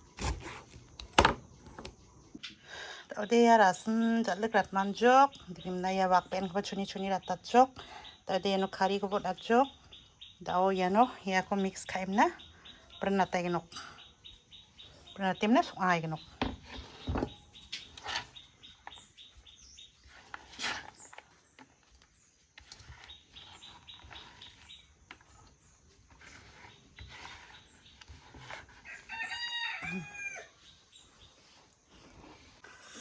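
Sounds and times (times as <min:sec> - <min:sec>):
rooster crowing: 0:28.8 - 0:30.6.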